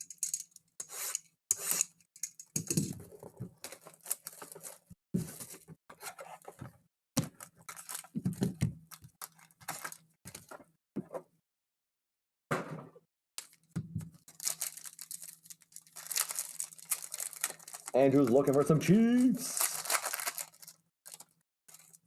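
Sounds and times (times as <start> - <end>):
plastic wrap crinkling and tearing: 3.6 - 6.5, 7.3 - 10.5, 13.4 - 22.0.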